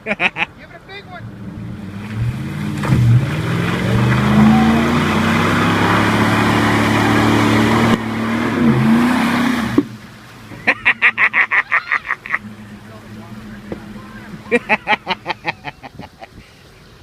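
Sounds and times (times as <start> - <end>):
vehicle engine revving hard: 1.2 - 10.0.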